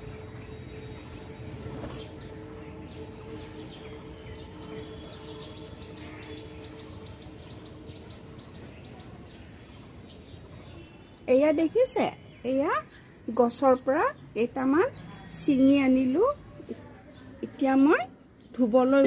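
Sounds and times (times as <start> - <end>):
steady low hum: 0.0 - 10.2
outdoor background noise: 0.0 - 19.0
small birds chirping: 0.0 - 19.0.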